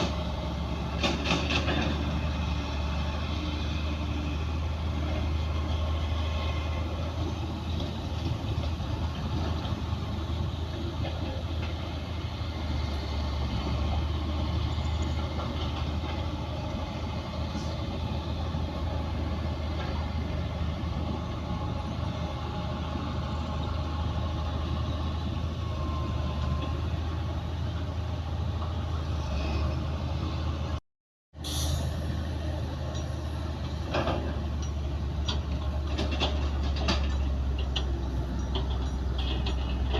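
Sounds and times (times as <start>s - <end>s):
diesel machinery engine hum: 0.0s - 39.9s
metal clanks: 33.9s - 39.9s.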